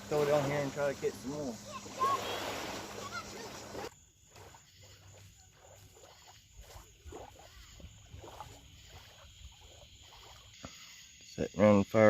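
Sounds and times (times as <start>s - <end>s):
frogs calling: 0.0s - 12.0s
high insect drone: 0.0s - 12.0s.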